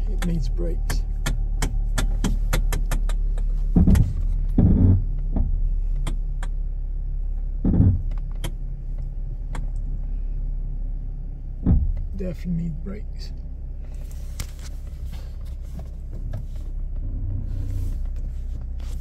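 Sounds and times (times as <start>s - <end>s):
car engine idling: 0.0s - 19.0s
loud thumps: 0.9s - 5.6s.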